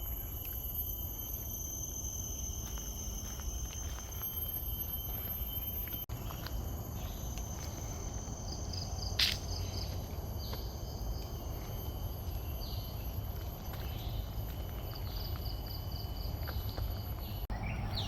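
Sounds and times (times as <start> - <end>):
insects droning: 0.0 - 18.0
constant low rumble: 5.1 - 18.0.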